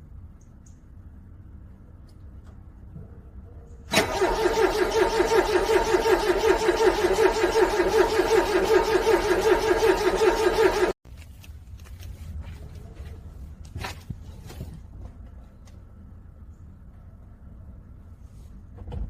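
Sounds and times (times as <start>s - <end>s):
car engine cranking: 3.9s - 11.0s.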